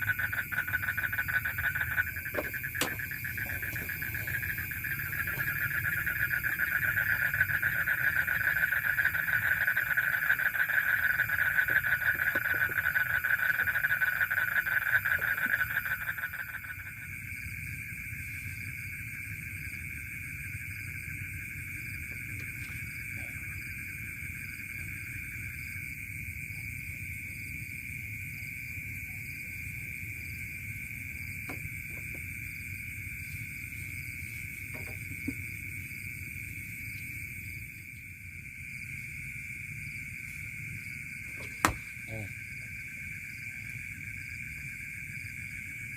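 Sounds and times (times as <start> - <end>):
fast-pulsing insect trill: 0.0 - 26.0.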